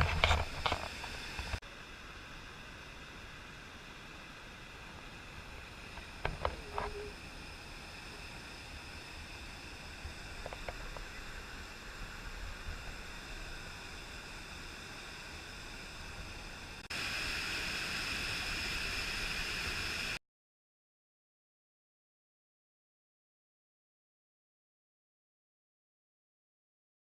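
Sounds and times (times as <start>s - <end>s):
steady hiss: 0.0s - 20.2s.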